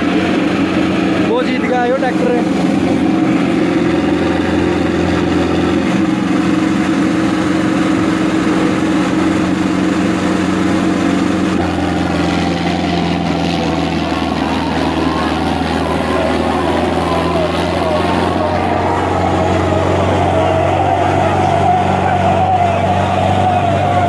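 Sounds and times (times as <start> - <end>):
tractor diesel engines under load: 0.0 - 24.0.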